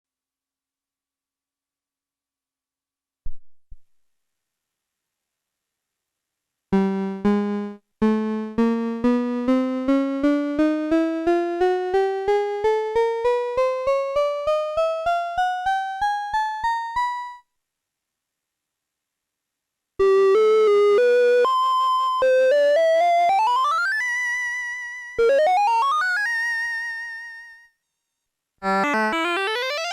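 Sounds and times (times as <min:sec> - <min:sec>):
buzzy electronic keyboard notes: 0:06.8 - 0:17.4, 0:28.6 - 0:29.9.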